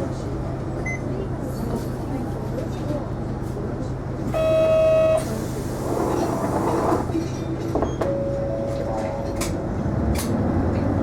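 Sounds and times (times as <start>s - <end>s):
bus engine drone: 0.0s - 11.0s
road noise: 5.2s - 11.0s.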